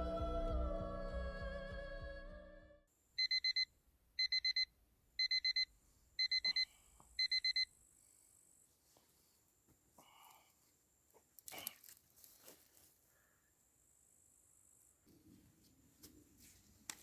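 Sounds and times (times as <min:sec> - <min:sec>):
background music: 0:00.0 - 0:02.8
digital alarm beeping: 0:03.2 - 0:03.6, 0:04.2 - 0:07.7.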